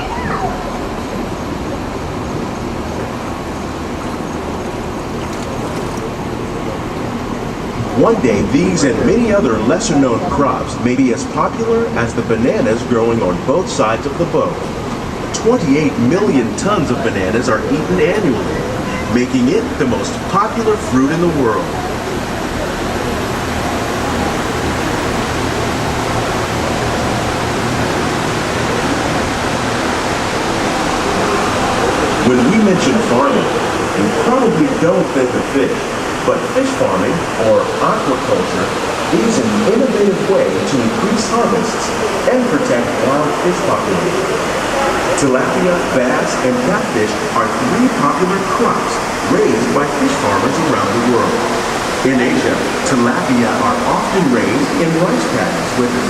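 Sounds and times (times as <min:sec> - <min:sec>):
boat rumble and water hiss: 0:00.0 - 0:56.0
low hum: 0:20.1 - 0:34.1.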